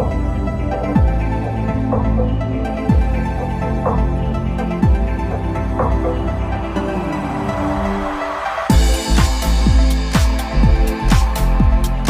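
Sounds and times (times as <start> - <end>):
heavy bass beat with bass drops: 0.0 - 12.0.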